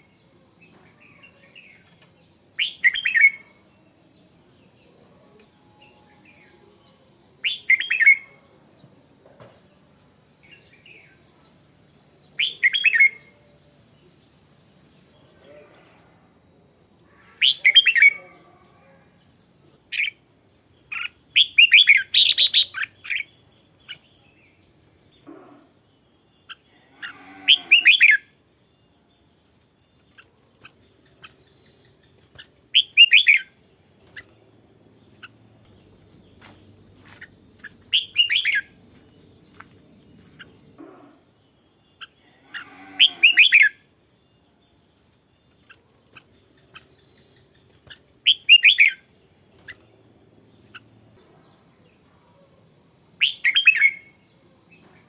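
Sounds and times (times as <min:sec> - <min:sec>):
bulbul singing: 0:12.2 - 0:13.4, 0:19.4 - 0:25.3, 0:29.2 - 0:40.8, 0:45.3 - 0:51.2.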